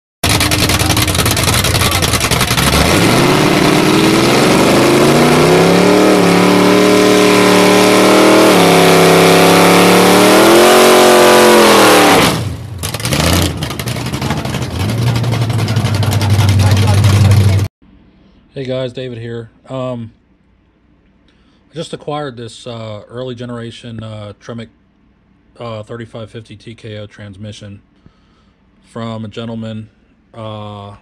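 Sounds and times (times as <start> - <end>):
car engine revving: 0.2 - 17.7.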